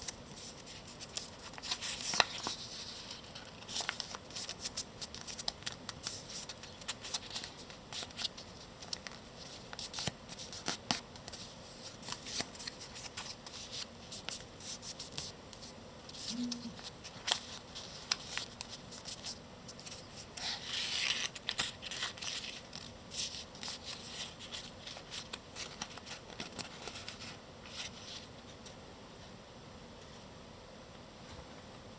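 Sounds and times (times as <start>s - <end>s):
paper folding and crinkling: 0.0s - 28.8s.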